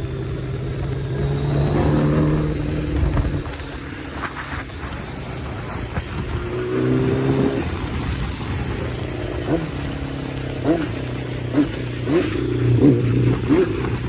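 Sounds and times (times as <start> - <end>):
motorcycle engine cruising: 0.0 - 14.0
wind rush on microphone: 0.2 - 10.2.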